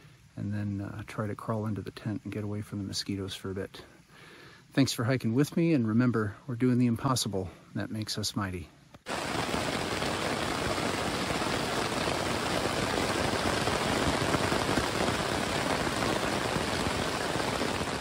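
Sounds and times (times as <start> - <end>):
rain on a tent: 9.0 - 18.0.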